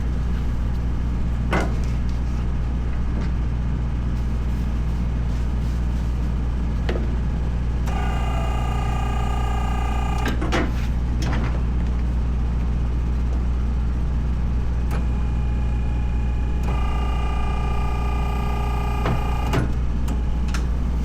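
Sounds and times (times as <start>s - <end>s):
engine whine: 7.8s - 10.4s, 14.9s - 20.6s.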